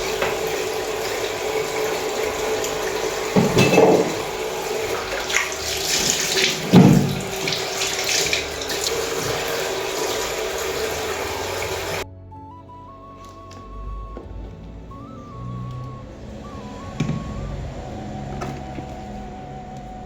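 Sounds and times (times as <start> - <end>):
tap running into sink: 0.0 - 12.0, 16.9 - 17.5
soft background music: 0.0 - 20.0
clunk: 3.4 - 4.3.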